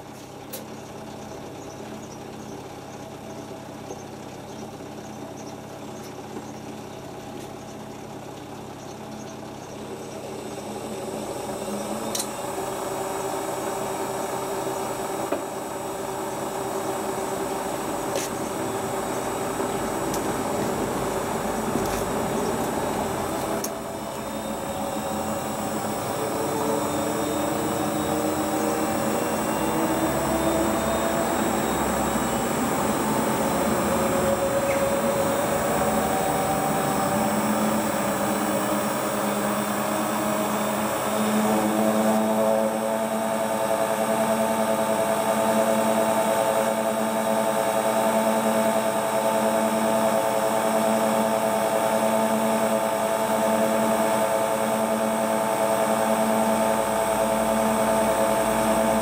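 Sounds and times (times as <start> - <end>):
washing machine drum spinning: 10.0 - 42.5.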